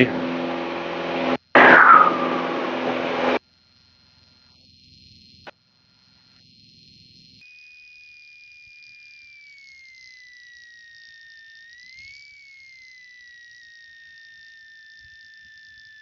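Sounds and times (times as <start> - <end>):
high-pitched whine: 0.0 - 3.4.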